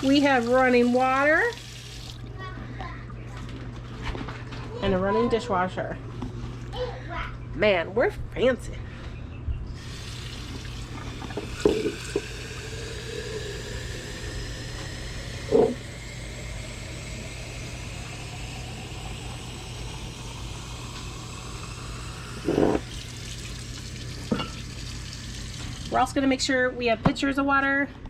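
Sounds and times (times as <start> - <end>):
water running into a jar: 0.0 - 2.3, 9.8 - 26.1.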